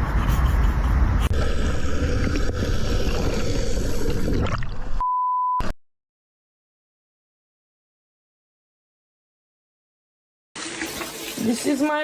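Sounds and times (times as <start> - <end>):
censor bleep: 5.0 - 5.8.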